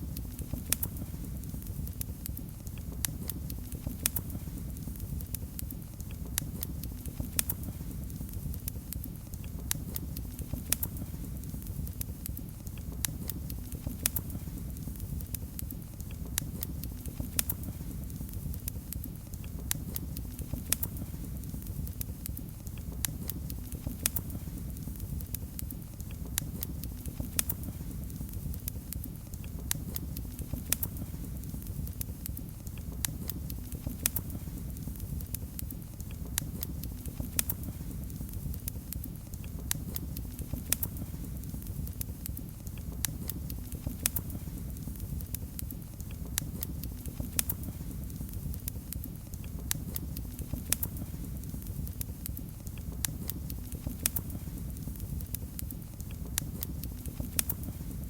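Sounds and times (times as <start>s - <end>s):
fireplace fire crackling and popping: 0.0s - 58.0s.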